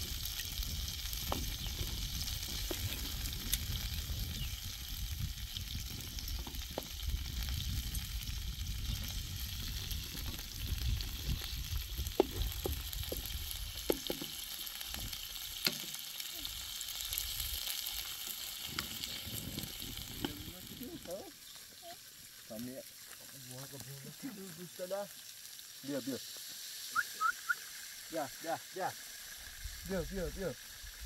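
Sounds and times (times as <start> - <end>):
food sizzling in a pan: 0.0 - 31.0
utensil knocking against pan: 13.8 - 14.4.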